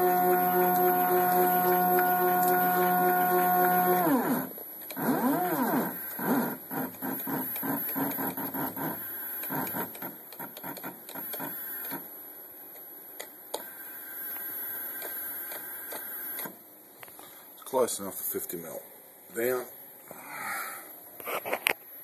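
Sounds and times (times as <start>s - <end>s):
stepper motor whining: 0.0s - 10.1s.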